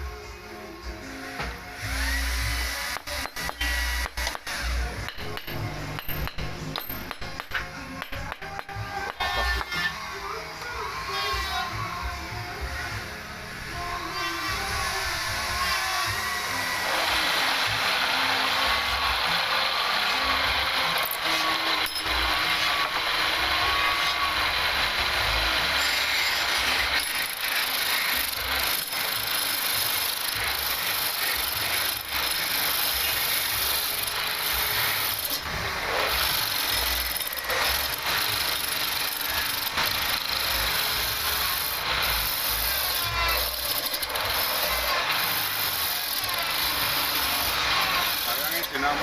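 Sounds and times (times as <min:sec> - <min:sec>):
wood lathe cutting hiss: 0:12.6 - 0:49.0.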